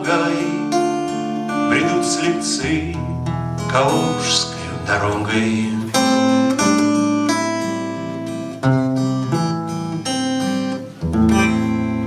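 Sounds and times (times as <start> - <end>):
acoustic guitar strummed chords: 0.0 - 12.0.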